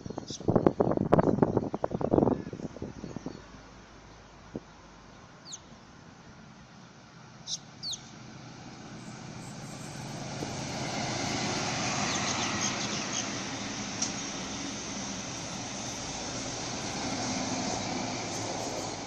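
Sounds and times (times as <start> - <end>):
bird chirps: 5.4 - 5.7, 7.5 - 8.1
electric train running: 8.6 - 19.0.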